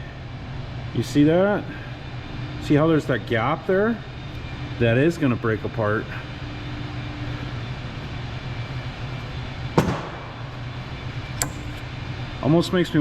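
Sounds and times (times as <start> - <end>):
low hum of shop background: 0.0 - 13.0
sharp knock: 9.8 - 10.3
light click: 11.4 - 11.8.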